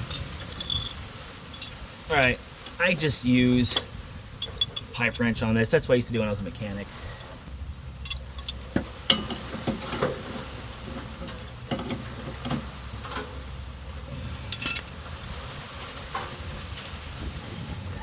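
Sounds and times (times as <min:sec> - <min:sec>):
wrench clanking on metal: 0:00.0 - 0:02.4, 0:03.7 - 0:05.4, 0:07.9 - 0:10.1, 0:14.5 - 0:15.0.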